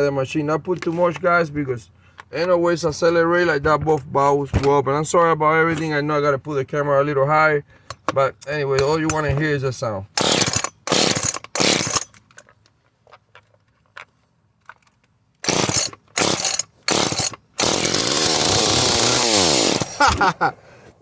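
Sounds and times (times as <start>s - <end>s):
chainsaw engine running: 10.2s - 12.0s, 15.4s - 20.4s
recoil starter pulls: 10.2s - 12.2s, 15.4s - 20.3s.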